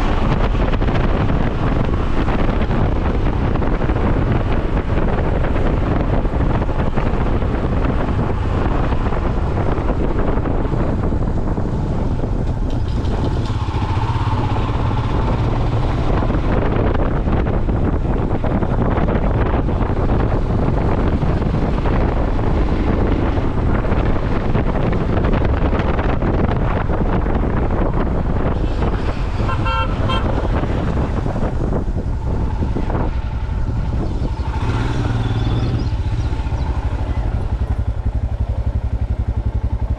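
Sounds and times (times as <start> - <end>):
motorcycle running: 0.0 - 39.9
wind buffeting microphone: 0.0 - 39.9
vehicle horn beeps: 29.4 - 30.6.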